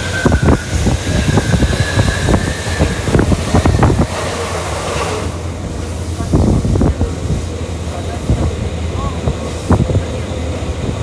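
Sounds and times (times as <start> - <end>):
high squeal: 0.0 - 5.3
train low rumble: 0.0 - 11.0.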